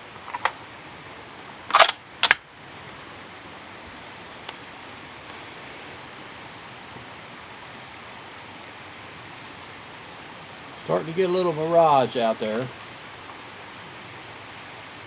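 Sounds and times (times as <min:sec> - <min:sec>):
steady hiss: 0:00.0 - 0:15.0
rifle shots: 0:01.7 - 0:02.4.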